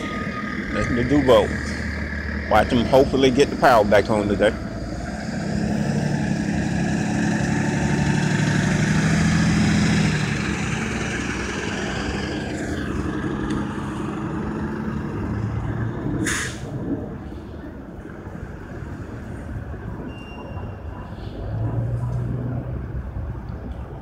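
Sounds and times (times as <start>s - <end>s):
truck engine running: 0.0s - 24.0s
air brakes hissing: 16.2s - 16.8s.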